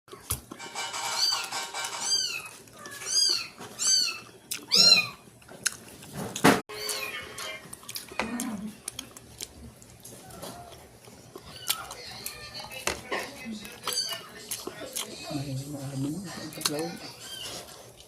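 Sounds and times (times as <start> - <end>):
cat meowing: 1.2 - 5.2.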